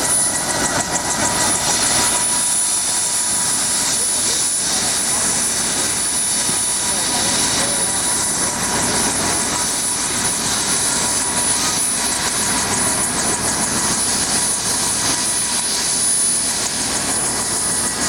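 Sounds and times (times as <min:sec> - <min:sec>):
helicopter turbine and rotor: 0:00.0 - 0:18.0.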